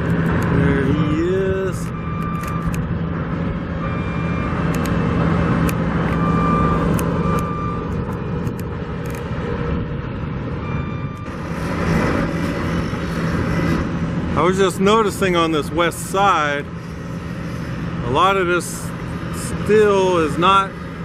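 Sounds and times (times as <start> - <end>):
heavy machinery engine drone: 0.0 - 21.0
backup alarm beeping: 1.8 - 2.8, 3.8 - 4.6, 6.1 - 8.0, 10.6 - 11.4.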